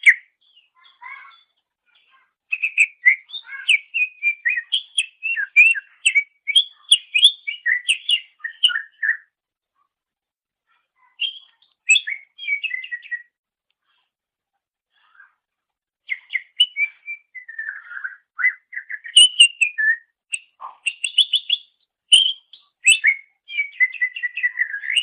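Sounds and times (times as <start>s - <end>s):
bird singing whistled notes: 0.0s - 1.4s, 2.5s - 9.3s, 11.2s - 13.4s, 16.1s - 25.0s.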